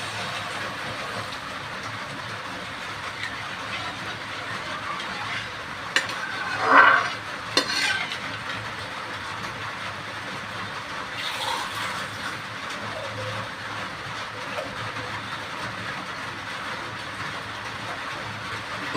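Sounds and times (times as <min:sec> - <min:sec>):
masala sizzling in a pan: 0:00.0 - 0:14.0
spoon scraping a pan: 0:03.1 - 0:08.5.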